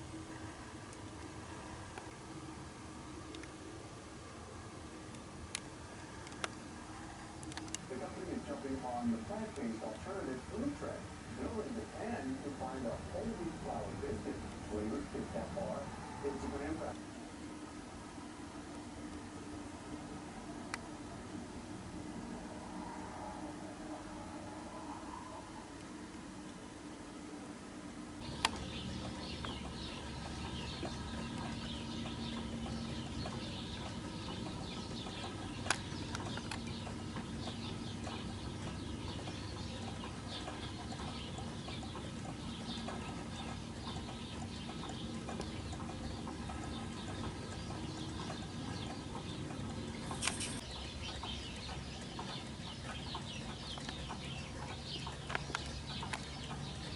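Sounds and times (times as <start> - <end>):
sharp clicks: 5.1 - 6.6, 7.4 - 7.9, 28.3 - 56.9
small birds chirping: 5.6 - 17.8, 28.2 - 56.9
sharp click: 50.1 - 50.6.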